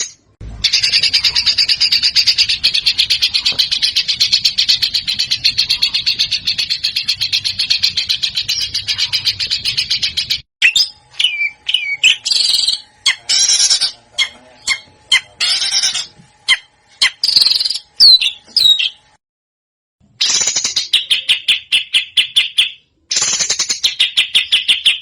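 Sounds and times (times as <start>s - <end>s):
fast bird trill: 0.0s - 19.1s, 20.2s - 25.0s
harsh rasping bird calls: 0.0s - 19.1s
down-slurred bird whistles: 7.4s - 14.8s.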